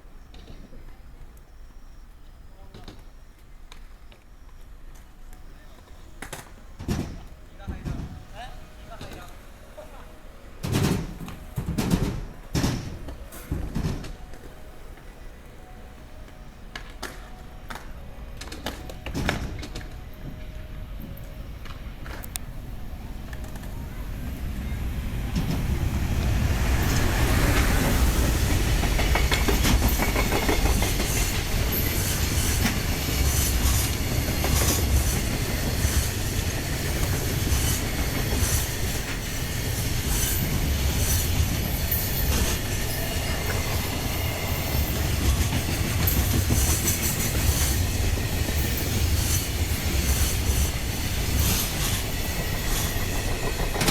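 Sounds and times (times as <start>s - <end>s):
freight train rumbling on rails: 0.0s - 53.9s
wheels clicking over rail joints: 10.6s - 15.6s, 16.2s - 53.9s.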